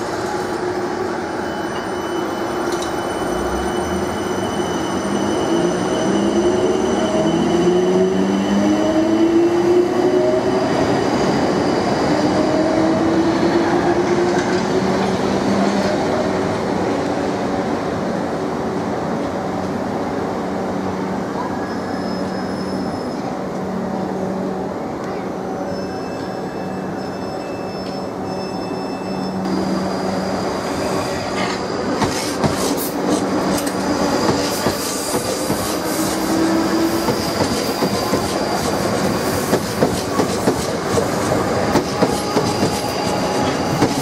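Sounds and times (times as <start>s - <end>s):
wheels rumbling on rail: 29.4s - 44.0s.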